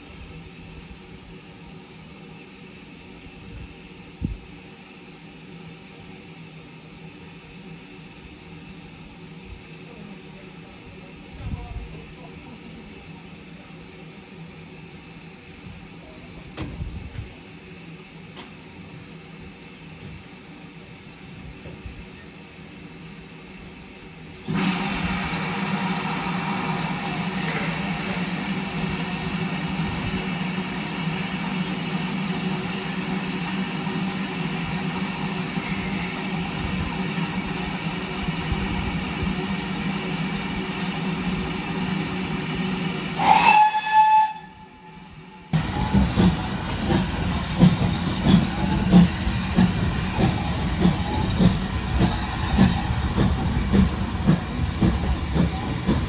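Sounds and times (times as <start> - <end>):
steam locomotive hissing: 0.0 - 56.0
train wheels clattering on rails: 26.8 - 43.0, 45.6 - 56.0
steam whistle blast: 43.2 - 45.6.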